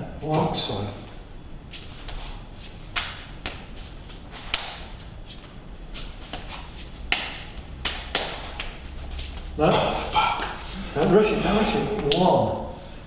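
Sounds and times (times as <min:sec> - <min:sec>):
hands slapping forearms: 0:01.7 - 0:10.6.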